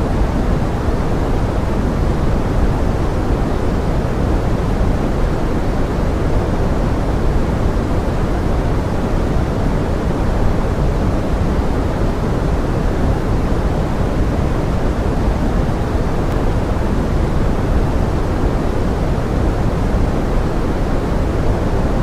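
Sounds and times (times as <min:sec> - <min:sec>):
pink noise: 0:00.0 - 0:22.0.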